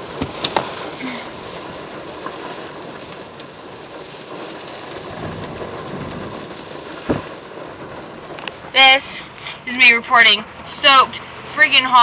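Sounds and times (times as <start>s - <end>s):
heavy rain on car roof: 0.0s - 12.0s
short thump: 7.0s - 7.4s.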